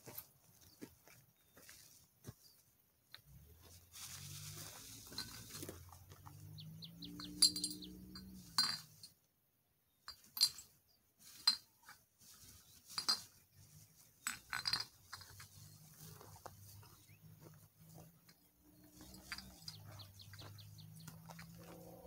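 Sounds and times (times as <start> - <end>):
glass bottles clinking: 5.0 - 5.8, 7.1 - 9.1, 10.1 - 10.8, 13.0 - 13.3, 14.2 - 15.7, 19.0 - 20.5.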